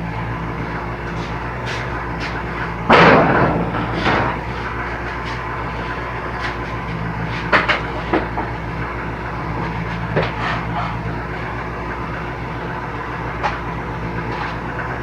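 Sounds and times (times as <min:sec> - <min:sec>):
sharp knocks: 0:02.9 - 0:04.4
saw blade cutting wood: 0:10.0 - 0:11.1.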